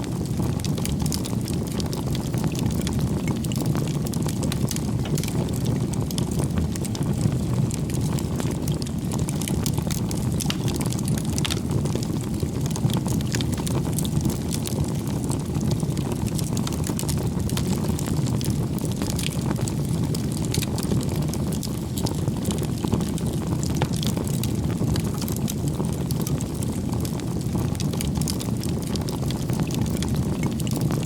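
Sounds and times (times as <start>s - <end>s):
campfire crackling: 0.0s - 31.0s.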